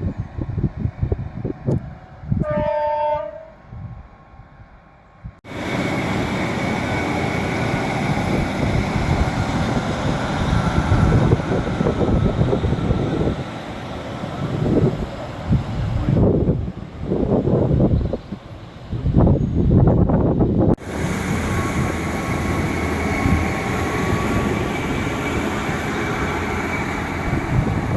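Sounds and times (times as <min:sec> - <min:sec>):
train passing rumbling: 0:00.0 - 0:27.9
train horn blast: 0:02.4 - 0:03.6.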